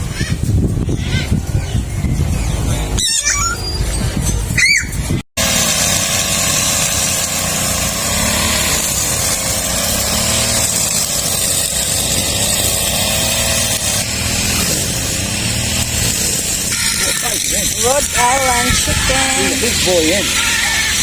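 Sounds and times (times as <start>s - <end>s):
small engine running: 5.4s - 21.0s.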